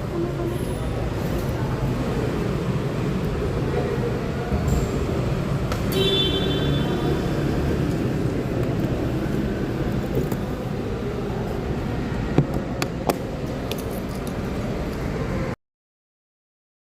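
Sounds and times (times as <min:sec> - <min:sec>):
road and wind noise: 0:00.0 - 0:15.6
scooter engine: 0:05.0 - 0:13.5.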